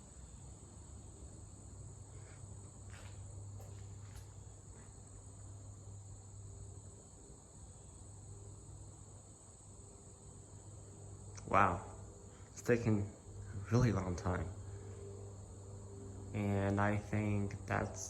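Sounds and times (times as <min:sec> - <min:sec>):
high-pitched insect trill: 0:00.0 - 0:18.0
low hum: 0:09.9 - 0:18.0.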